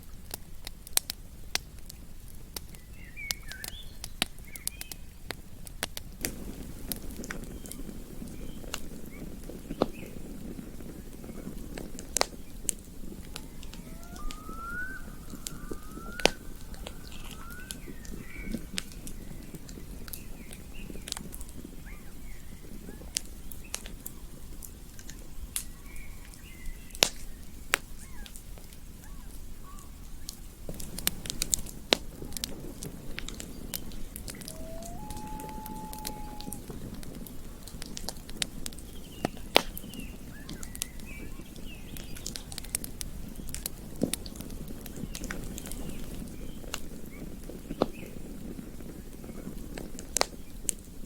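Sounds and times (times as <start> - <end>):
campfire crackling and popping: 0.0 - 51.0
bird chirping: 13.2 - 19.4, 33.4 - 36.7.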